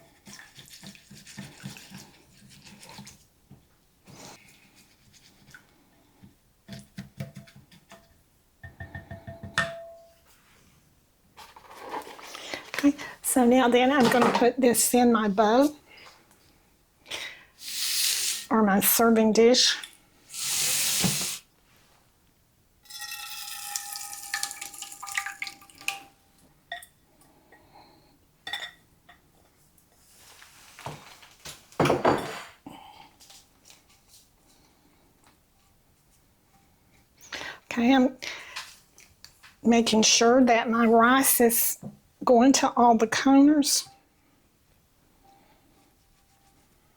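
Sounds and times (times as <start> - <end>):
spoon stirring thick mixture: 0.0 - 3.3
clinks against dish: 8.8 - 10.1
wet mixture pouring into dish: 22.9 - 26.0.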